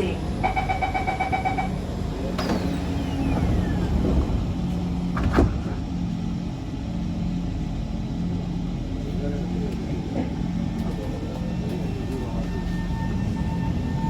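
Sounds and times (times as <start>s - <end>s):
train low hum: 0.0s - 14.0s
train doors shutting: 0.3s - 6.2s, 9.7s - 14.0s.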